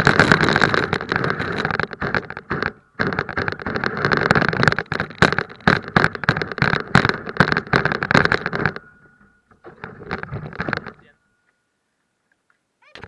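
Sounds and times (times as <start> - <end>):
car engine rattling and crackling: 0.0 - 9.0.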